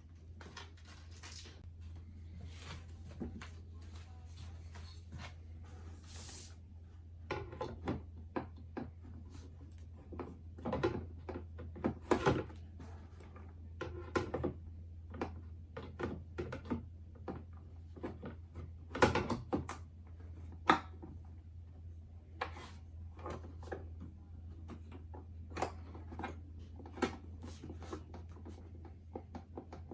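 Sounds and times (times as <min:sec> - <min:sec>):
packaging rustling: 0:00.2 - 0:01.6.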